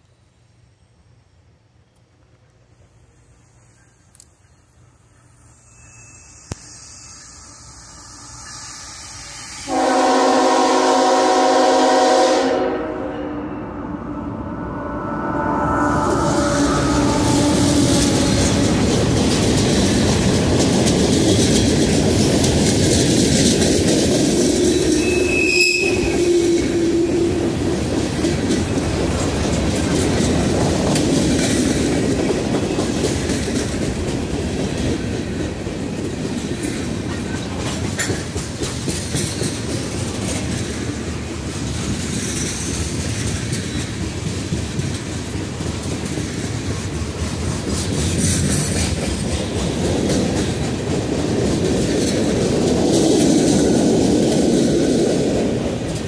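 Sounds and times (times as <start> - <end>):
wheel squeal: 5.4 - 9.7, 24.7 - 27.3
steel wheels clattering on rails: 17.2 - 56.0.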